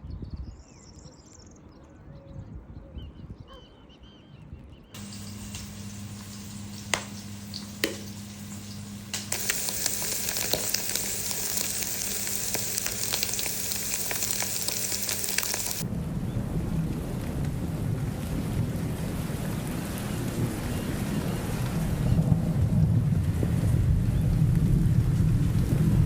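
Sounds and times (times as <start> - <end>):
raindrop clicks: 5.0 - 15.8
low steady hum: 5.0 - 15.9
rain hissing: 5.0 - 15.9.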